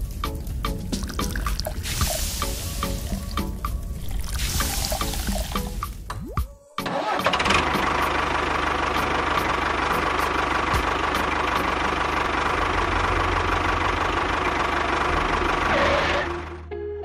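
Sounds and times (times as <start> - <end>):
tractor engine running: 0.0 - 6.1, 6.8 - 16.8
regular knocking beat: 0.1 - 3.9, 4.6 - 6.6, 9.9 - 11.7.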